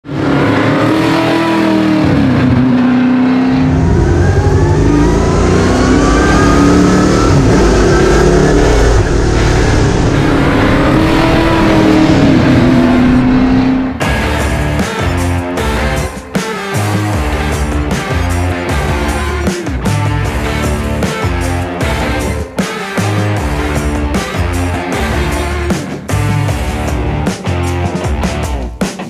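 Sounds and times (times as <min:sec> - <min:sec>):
race car engine accelerating: 0:00.0 - 0:16.2, 0:16.8 - 0:27.2.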